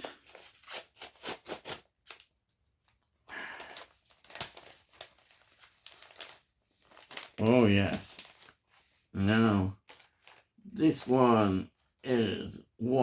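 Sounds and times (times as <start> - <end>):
packaging tearing and rustling: 0.0 - 2.3, 2.9 - 9.0, 9.8 - 11.2
packaging crinkling: 0.0 - 9.0, 9.8 - 11.2.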